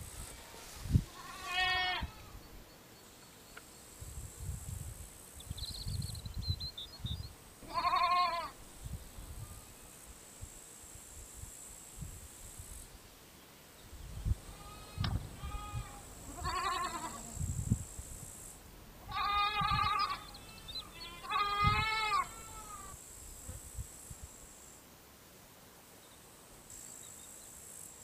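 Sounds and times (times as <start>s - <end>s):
crickets hissing: 0.0s - 25.2s, 25.8s - 28.0s
sheep bleating: 1.1s - 2.4s, 7.6s - 8.6s, 14.5s - 17.3s, 19.0s - 23.0s
bird chirping: 5.4s - 7.4s, 19.9s - 21.4s.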